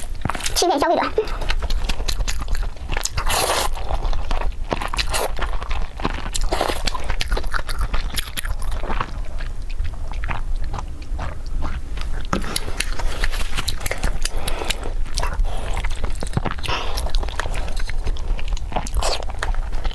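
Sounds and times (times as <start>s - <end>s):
low steady hum: 0.0s - 19.9s
mouth clicks and crunchy chewing: 0.0s - 19.9s
smacking mouth sounds: 4.8s - 19.9s.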